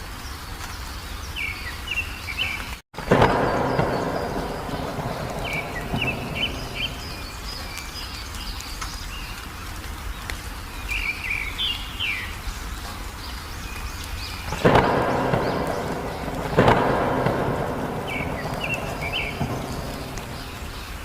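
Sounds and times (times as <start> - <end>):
small birds chirping: 0.0 - 21.0
low rumbling background: 11.8 - 21.0.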